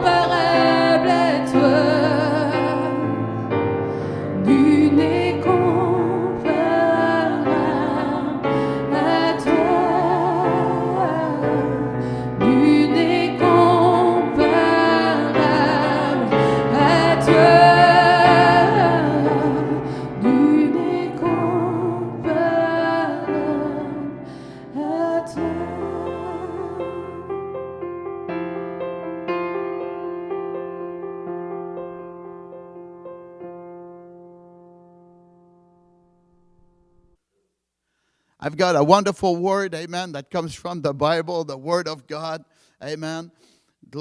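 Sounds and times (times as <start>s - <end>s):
woman singing with vibrato: 0.0s - 3.2s, 4.2s - 27.3s
piano accompaniment: 0.0s - 37.1s.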